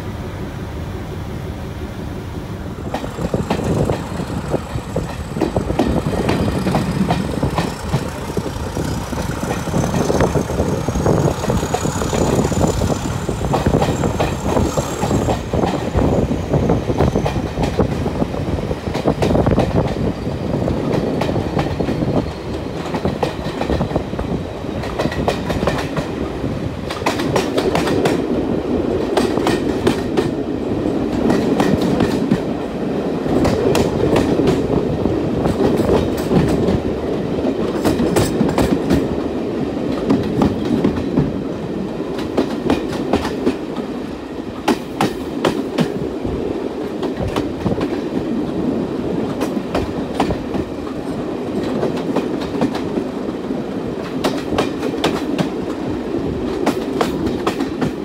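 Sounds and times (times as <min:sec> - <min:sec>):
train rumbling on track: 0:00.0 - 0:58.0
wheels clacking on rails: 0:02.7 - 0:58.0.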